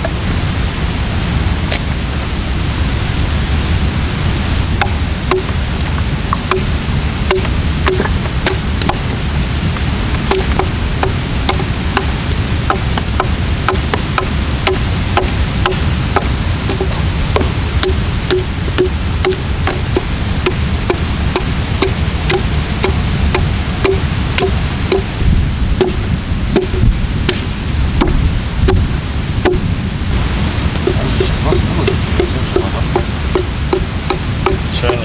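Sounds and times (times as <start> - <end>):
low background noise: 0.0 - 35.0
axe chopping log: 4.8 - 6.7, 7.3 - 9.1, 10.2 - 25.1, 25.8 - 29.7, 31.9 - 35.0.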